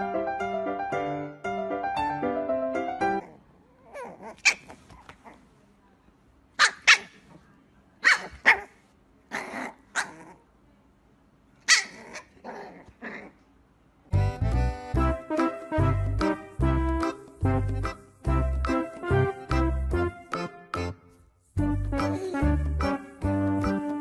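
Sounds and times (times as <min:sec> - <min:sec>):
music: 0:00.0 - 0:03.2, 0:14.1 - 0:24.0
puppy yapping: 0:03.2 - 0:05.4, 0:06.6 - 0:07.2, 0:08.0 - 0:10.4, 0:11.7 - 0:13.4.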